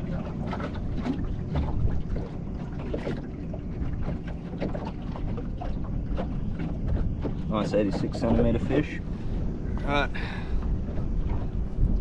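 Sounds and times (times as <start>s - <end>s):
water rumbling against boat: 0.0s - 12.0s
wind buffeting microphone: 0.0s - 12.0s
light knocks and bumps: 4.0s - 8.8s.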